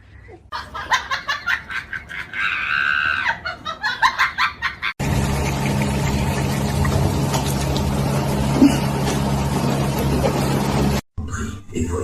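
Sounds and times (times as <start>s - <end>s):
steady droning hum: 5.0s - 11.0s.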